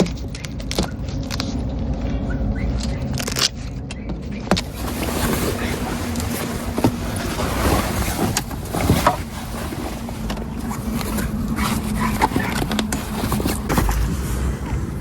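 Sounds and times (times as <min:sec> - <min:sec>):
boat engine running: 0:00.0 - 0:15.0
water and wind noise: 0:04.5 - 0:15.0.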